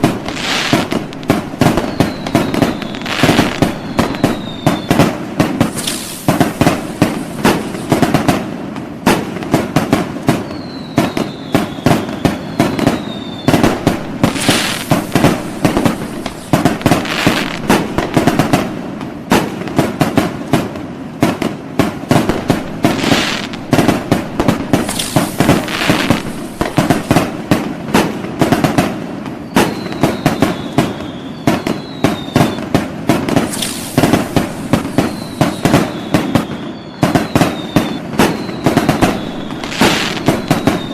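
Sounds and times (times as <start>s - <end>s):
falling firework whistles: 0.0s - 20.6s, 21.4s - 40.9s
fireworks bangs and crackling: 0.0s - 40.9s.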